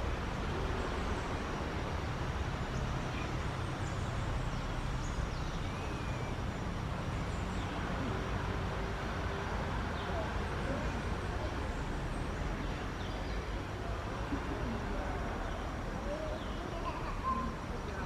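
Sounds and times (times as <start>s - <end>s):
rushing outdoor background noise: 0.0s - 18.0s
faint high bird chirps: 2.8s - 6.6s.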